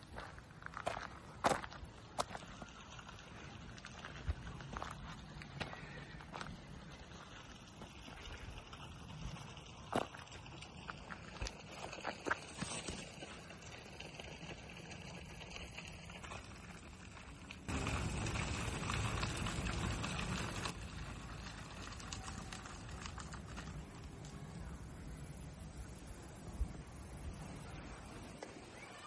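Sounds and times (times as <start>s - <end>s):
footsteps on outdoor path: 0.0s - 16.6s.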